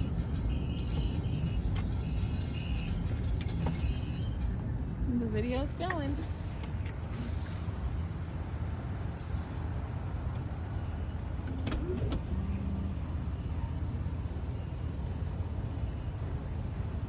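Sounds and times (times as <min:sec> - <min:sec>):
low vehicle rumble: 0:00.0 - 0:17.0.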